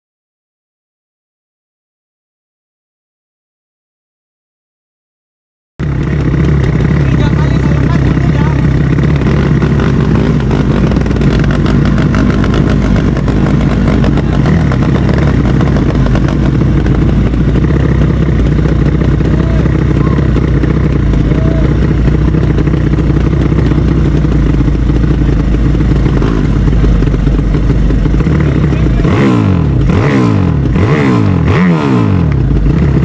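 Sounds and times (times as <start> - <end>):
motorcycle engines running loudly: 5.8 - 33.0
voices: 6.9 - 8.9, 19.2 - 22.6, 28.4 - 29.3.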